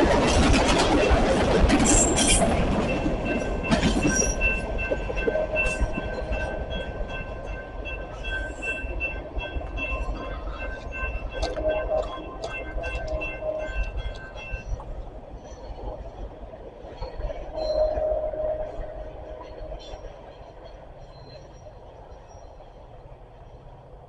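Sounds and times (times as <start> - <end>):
freight train rumbling past: 0.0 - 24.0
high ringing tone: 2.8 - 15.7, 17.3 - 21.8.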